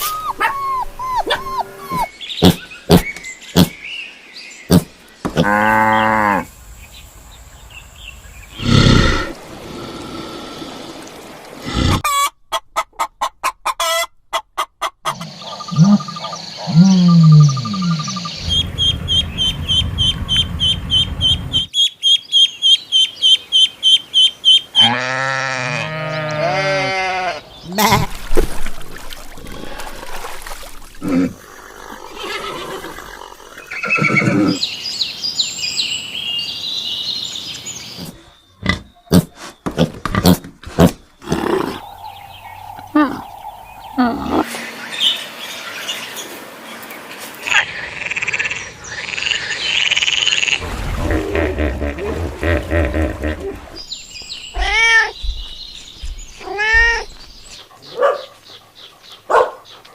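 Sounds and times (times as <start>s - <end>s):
animal calls: 0.0s - 3.0s, 47.4s - 53.8s.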